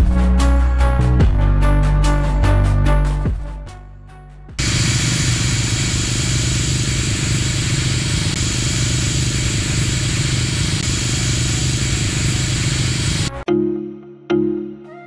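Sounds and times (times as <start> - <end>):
car engine idling: 4.6 - 13.4
loud even hiss: 4.6 - 13.4.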